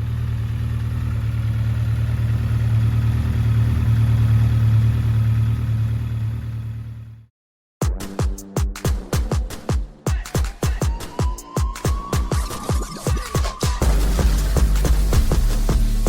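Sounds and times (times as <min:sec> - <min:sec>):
motorcycle engine idling: 0:00.0 - 0:07.3.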